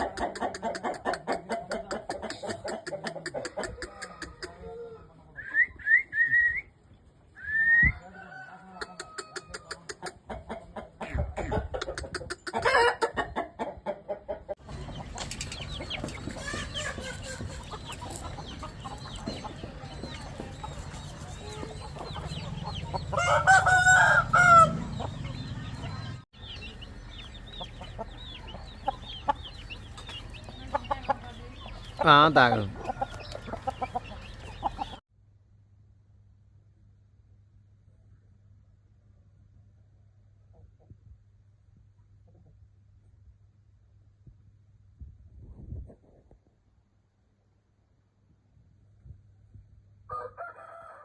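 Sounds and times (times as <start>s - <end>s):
chickens clucking: 0.0s - 5.3s, 7.9s - 35.0s
rooster crowing loudly: 7.9s - 9.6s, 23.2s - 24.8s, 50.1s - 51.0s.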